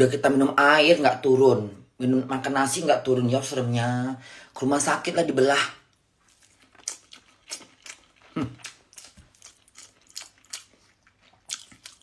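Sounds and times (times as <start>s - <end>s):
woman chewing and lip smacking: 6.2s - 12.0s.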